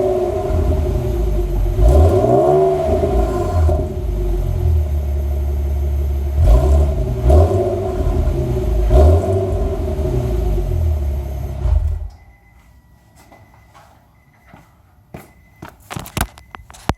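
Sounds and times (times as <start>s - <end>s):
car engine idle rumble and revving: 0.0s - 12.1s.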